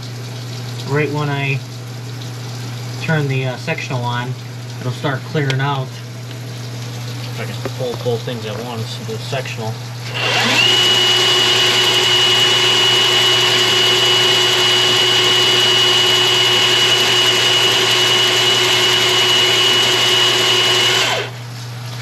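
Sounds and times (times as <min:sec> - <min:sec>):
drain machine whining: 0:00.0 - 0:22.0.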